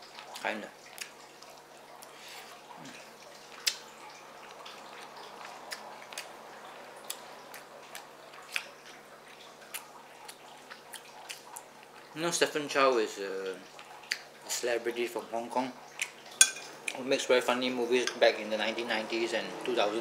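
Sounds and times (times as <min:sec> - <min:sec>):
person chewing with wet mouth clicks: 0:03.6 - 0:03.8, 0:07.0 - 0:08.8, 0:09.6 - 0:12.0, 0:13.8 - 0:14.3.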